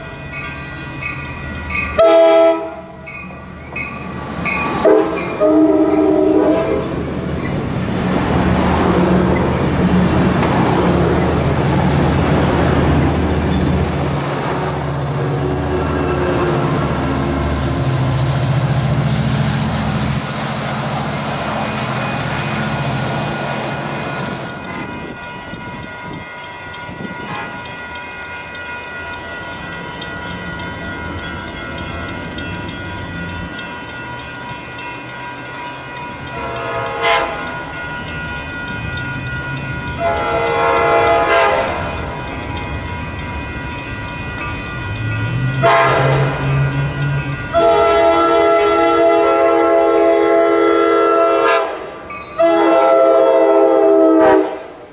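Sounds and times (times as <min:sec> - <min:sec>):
diesel train passing: 0:00.0 - 0:54.9
train air horn: 0:02.0 - 0:03.0, 0:04.8 - 0:06.9, 0:36.4 - 0:37.5, 0:40.0 - 0:41.8, 0:45.6 - 0:46.4, 0:47.5 - 0:54.7.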